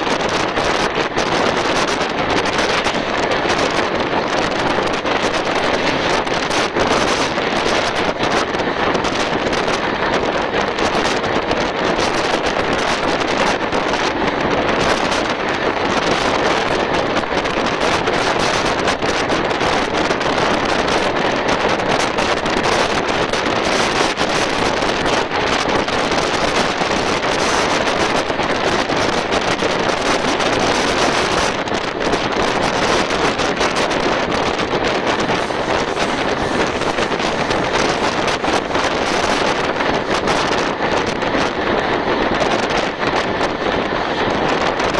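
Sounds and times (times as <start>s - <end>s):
wind buffeting microphone: 0.0s - 44.9s
train running at speed: 0.1s - 10.6s, 32.1s - 44.9s
wind rushing: 33.2s - 42.4s.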